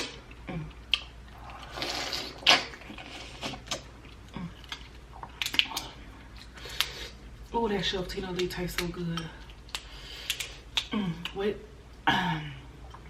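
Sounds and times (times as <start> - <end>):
prawn shells clicking and crackling: 8.3 - 10.9.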